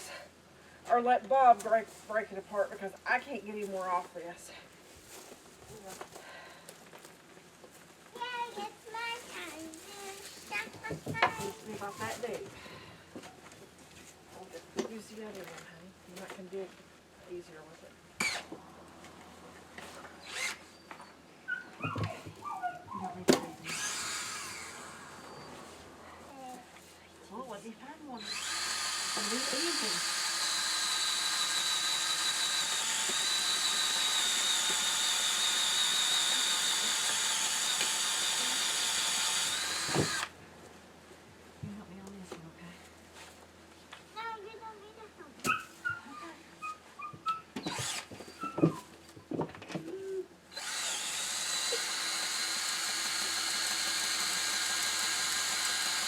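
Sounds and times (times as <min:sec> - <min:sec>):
small motorised tool whining: 0:18.2 - 0:18.6, 0:20.2 - 0:22.6, 0:23.2 - 0:25.6, 0:28.2 - 0:40.4, 0:45.5 - 0:48.9, 0:50.5 - 0:56.0.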